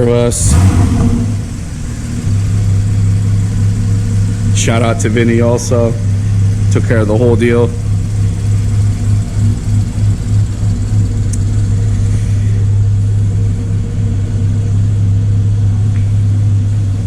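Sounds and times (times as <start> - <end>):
car engine humming: 0.0 - 17.0.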